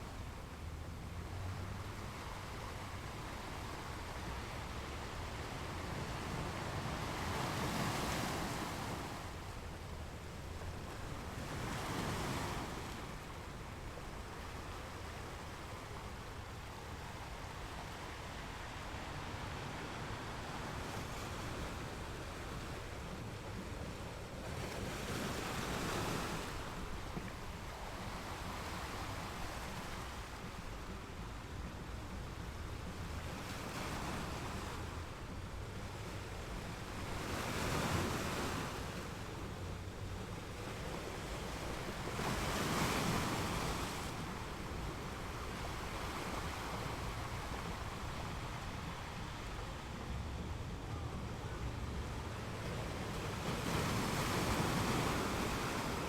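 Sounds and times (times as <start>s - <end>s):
small waves breaking on beach: 0.0s - 56.0s
wind rumble on microphone: 0.0s - 56.0s.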